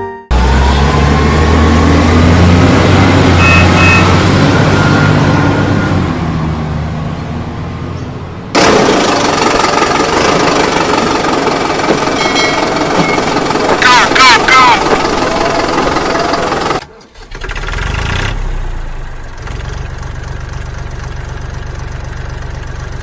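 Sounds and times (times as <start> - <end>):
vehicle engine humming: 0.0 - 23.0
harsh noisy motor: 8.6 - 18.4.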